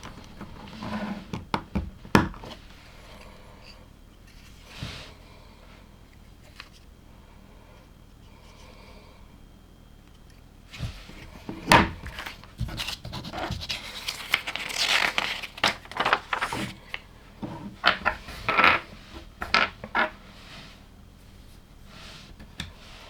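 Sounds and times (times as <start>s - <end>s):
plastic scraping and rustling: 0.0s - 2.7s, 10.8s - 20.6s.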